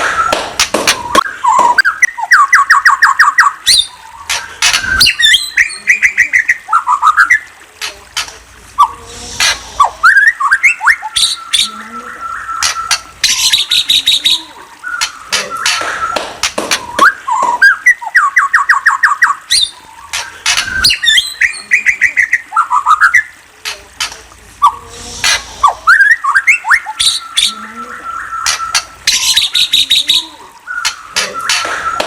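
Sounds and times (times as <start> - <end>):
bird chirping and squawking: 1.0 - 7.5, 8.8 - 23.5, 24.6 - 32.0.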